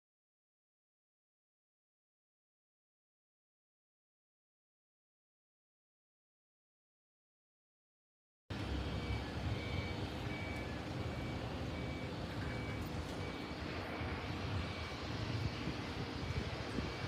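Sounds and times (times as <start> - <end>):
steady low rumble: 8.5 - 17.0
vehicle reversing beeper: 8.5 - 17.0.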